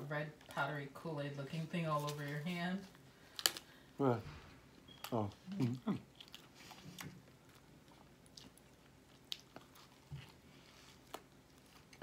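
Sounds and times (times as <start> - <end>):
person chewing: 4.9 - 12.0.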